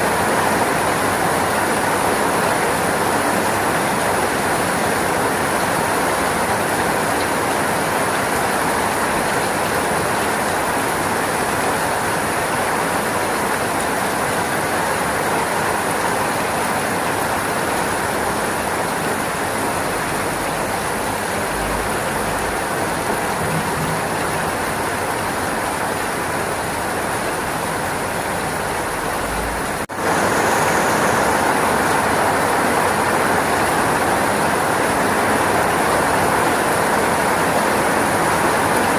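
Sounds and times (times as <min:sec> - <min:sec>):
steady rainfall hiss: 0:00.0 - 0:38.9.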